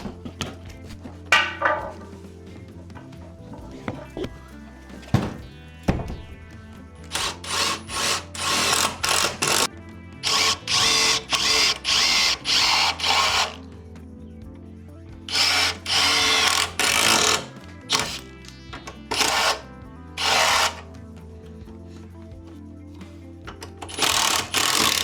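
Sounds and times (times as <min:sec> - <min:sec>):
faint background music: 0:00.0 - 0:25.0
power drill bursts: 0:07.0 - 0:13.6, 0:15.3 - 0:18.3, 0:19.1 - 0:19.6, 0:20.2 - 0:20.9, 0:23.8 - 0:25.0.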